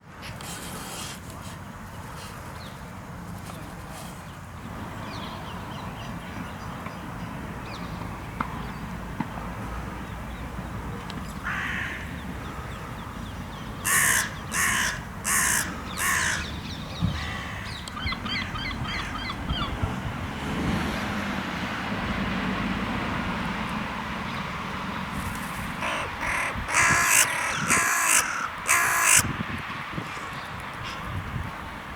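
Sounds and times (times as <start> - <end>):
crow cawing: 11.4 - 12.1, 13.8 - 16.5, 17.1 - 19.2, 25.8 - 29.3
short rattling bird calls: 13.8 - 16.5, 25.2 - 29.2.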